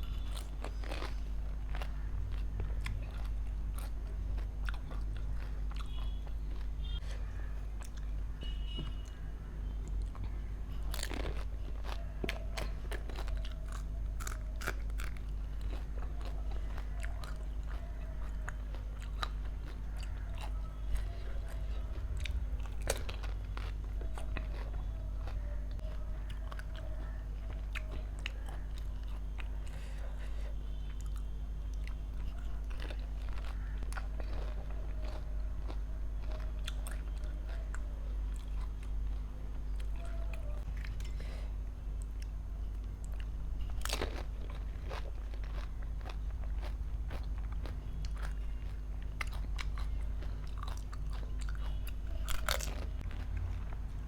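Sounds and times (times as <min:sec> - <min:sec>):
chewing: 0:00.0 - 0:08.2, 0:08.8 - 0:54.0
steady low hum: 0:00.0 - 0:54.0
crisp puris cracking when bitten: 0:32.2 - 0:39.0, 0:42.0 - 0:53.8.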